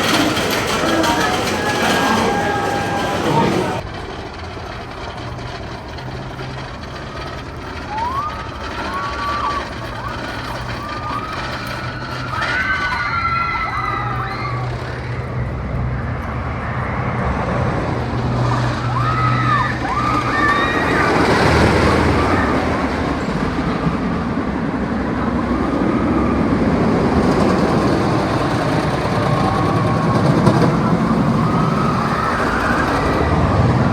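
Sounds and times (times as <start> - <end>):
roller coaster rushing rumble: 0.0 - 33.9.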